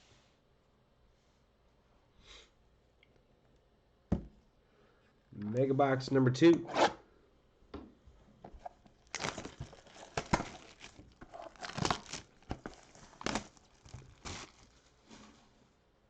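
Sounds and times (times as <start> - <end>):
plastic wrapping crinkling and tearing: 8.5 - 15.4.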